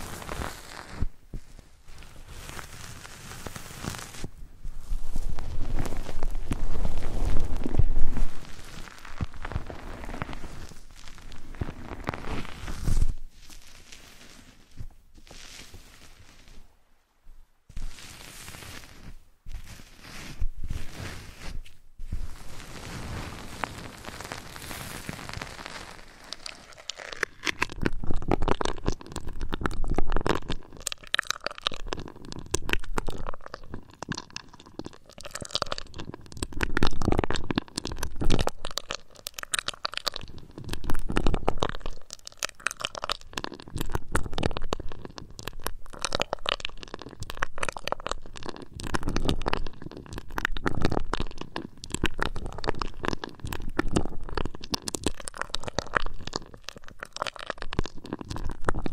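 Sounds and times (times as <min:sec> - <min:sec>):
steady hiss: 0:00.0 - 0:16.8
crackly rubbing and tapping on mic: 0:00.0 - 0:58.9.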